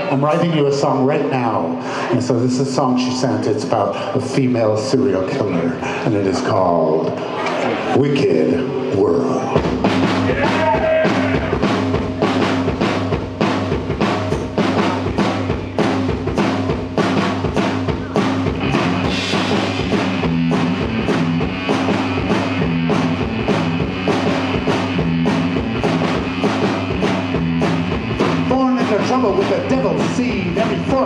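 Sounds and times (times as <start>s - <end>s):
bass guitar: 4.8s - 31.0s
drum kit beat: 9.0s - 31.0s
electric guitar: 17.6s - 31.0s.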